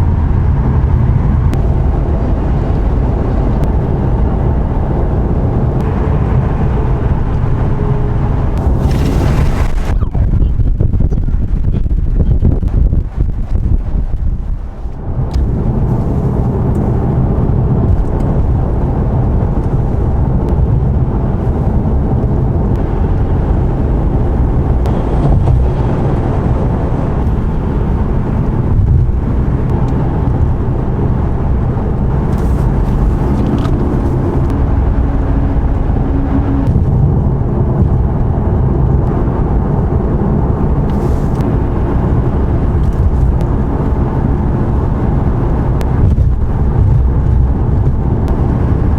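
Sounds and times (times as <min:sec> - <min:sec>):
car interior road rumble: 0:00.0 - 0:48.9.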